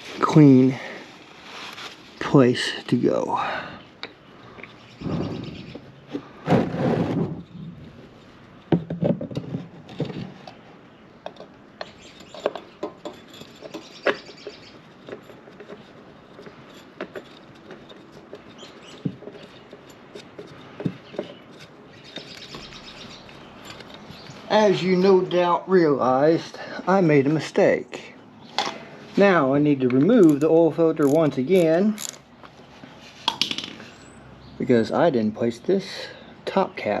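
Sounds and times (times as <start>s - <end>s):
rustling or wiping: 1.0s - 2.4s
light clicks and taps of parts: 11.2s - 24.4s.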